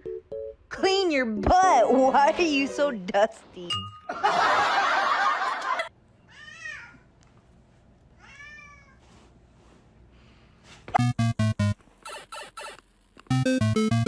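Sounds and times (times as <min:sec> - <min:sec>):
cat meowing: 0:08.2 - 0:09.0.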